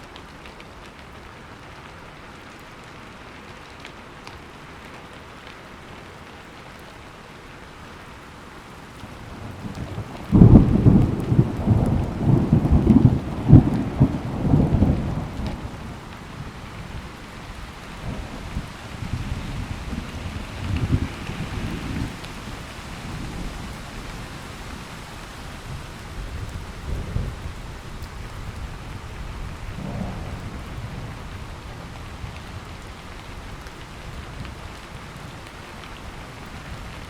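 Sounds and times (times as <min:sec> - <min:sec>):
steady rain: 0:00.0 - 0:37.0
thunderclap rumbling: 0:09.3 - 0:24.9, 0:25.6 - 0:34.7.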